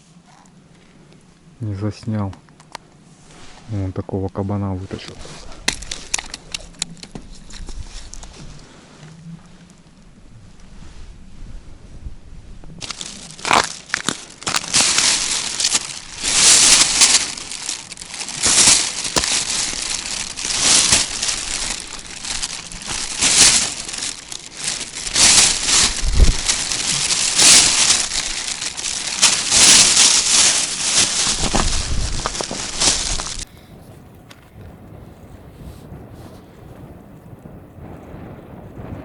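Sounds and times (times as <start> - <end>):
crinkling and crunching: 4.9 - 9.8, 12.7 - 33.5.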